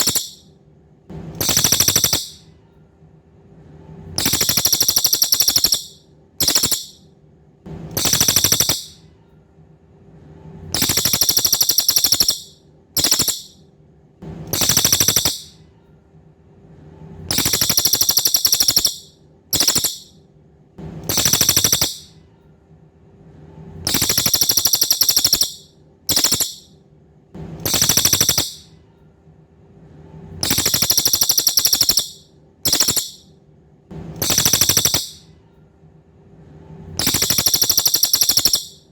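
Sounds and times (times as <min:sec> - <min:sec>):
bird singing buzzy trills: 0:00.0 - 0:00.5, 0:01.4 - 0:02.4, 0:04.2 - 0:07.0, 0:08.0 - 0:09.0, 0:10.8 - 0:13.6, 0:14.5 - 0:15.6, 0:17.3 - 0:20.2, 0:21.1 - 0:22.2, 0:23.9 - 0:26.7, 0:27.6 - 0:28.7, 0:30.4 - 0:33.3, 0:34.2 - 0:35.3, 0:37.0 - 0:38.9.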